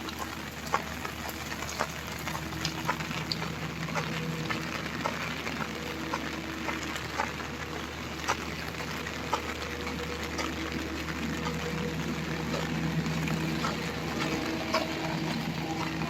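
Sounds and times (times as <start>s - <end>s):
sharp raindrops striking close by: 0.0s - 16.0s
steady rain falling: 0.0s - 16.0s.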